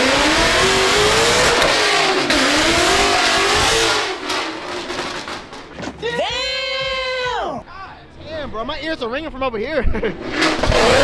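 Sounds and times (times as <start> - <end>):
car engine revving: 0.0 - 6.0, 9.9 - 11.0.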